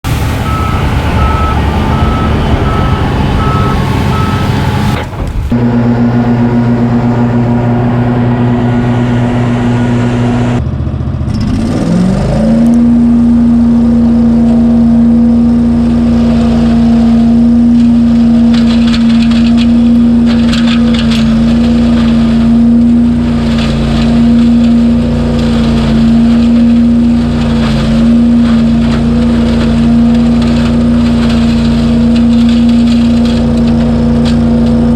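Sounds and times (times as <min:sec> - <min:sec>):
evenly spaced beeps: 0:00.5 - 0:04.5.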